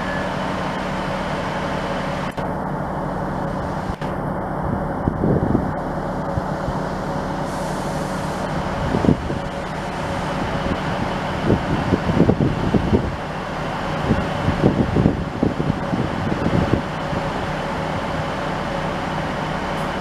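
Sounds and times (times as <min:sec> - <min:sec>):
train engine droning: 0:00.0 - 0:20.0
wind gusts on microphone: 0:04.6 - 0:06.9, 0:08.4 - 0:18.1.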